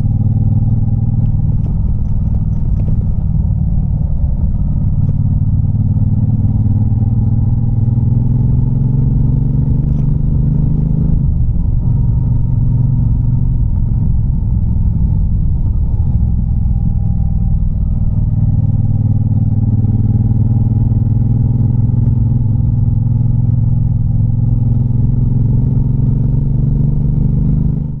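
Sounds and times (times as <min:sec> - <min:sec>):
motorcycle engine and exhaust: 0:00.0 - 0:28.0.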